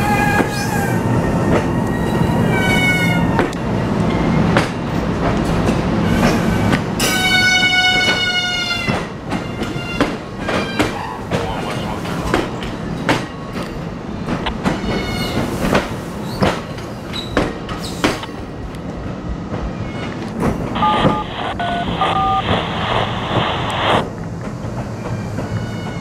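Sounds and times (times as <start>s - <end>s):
train wheels clacking over rail joints: 4.5s - 18.5s
wheel squeals: 17.1s - 18.0s
short beeps: 20.8s - 22.9s
scanner radio hiss: 20.8s - 24.1s.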